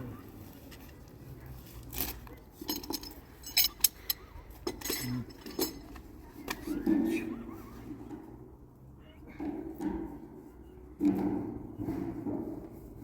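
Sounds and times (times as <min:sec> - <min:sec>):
hard objects clinking and knocking: 0:01.8 - 0:06.6.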